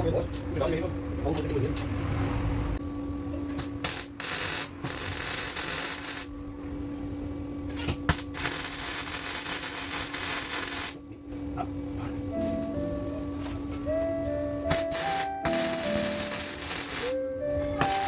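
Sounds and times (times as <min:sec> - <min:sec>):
steady hum: 0:00.0 - 0:18.0
welder sizzling hiss: 0:03.8 - 0:06.3, 0:08.1 - 0:11.0, 0:14.7 - 0:17.2, 0:17.8 - 0:18.0.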